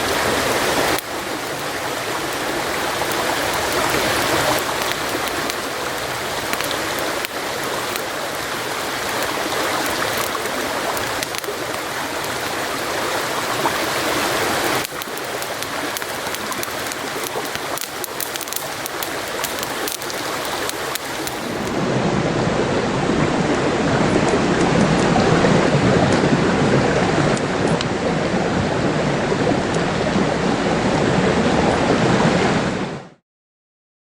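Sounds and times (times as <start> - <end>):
campfire crackling and popping: 0.0 - 21.9.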